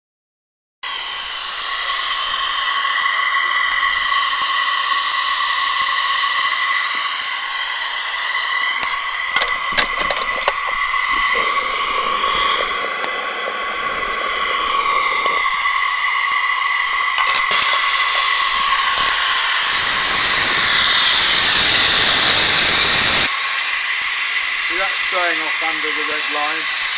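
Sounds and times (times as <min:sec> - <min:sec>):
model locomotive blowing off steam: 0:00.8 - 0:26.9
sharp clicks: 0:08.6 - 0:19.8.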